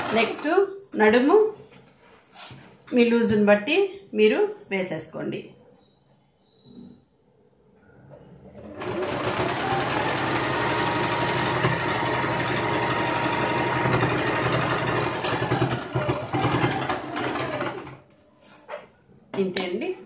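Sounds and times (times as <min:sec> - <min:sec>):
sewing machine running: 0:00.0 - 0:00.5, 0:08.6 - 0:18.1.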